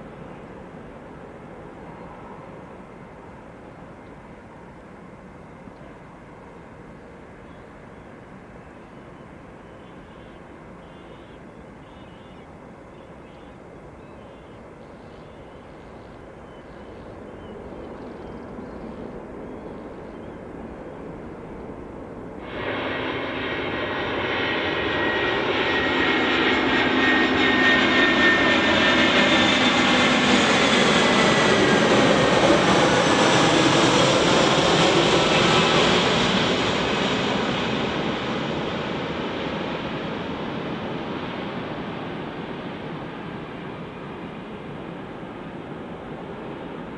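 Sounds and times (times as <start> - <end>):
jet airliner passing with whine: 0.0 - 46.9.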